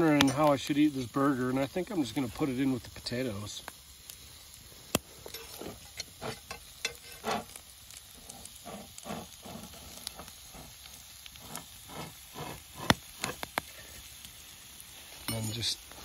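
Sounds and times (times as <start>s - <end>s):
food sizzling: 0.0s - 16.0s
utensil scraping and knocking: 5.2s - 7.6s, 11.4s - 13.4s.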